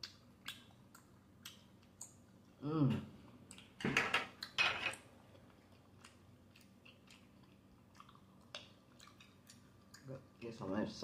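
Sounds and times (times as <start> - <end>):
mouth clicks and smacks: 0.0 - 2.2
person chewing food: 0.0 - 10.6.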